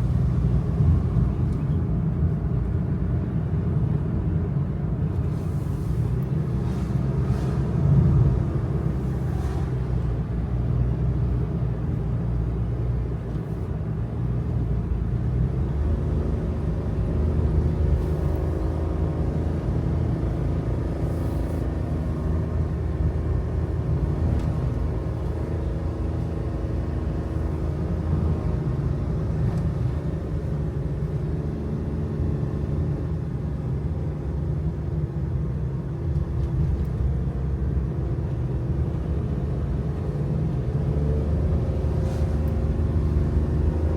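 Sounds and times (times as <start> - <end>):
road rumble: 0.0 - 43.9
truck engine drone: 13.6 - 43.9.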